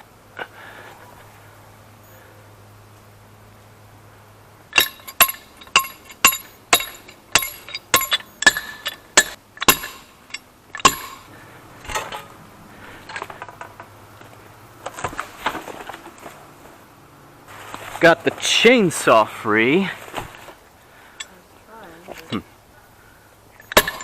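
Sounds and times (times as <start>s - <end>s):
hammer blows on metal: 4.7s - 11.3s
rustling: 4.9s - 18.5s, 19.8s - 22.3s.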